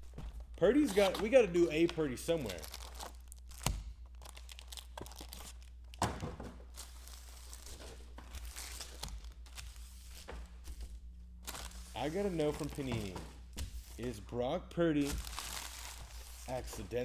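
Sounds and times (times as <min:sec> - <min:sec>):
card wrappers tearing and crinkling: 0:00.6 - 0:10.8, 0:11.4 - 0:14.2, 0:15.0 - 0:17.0.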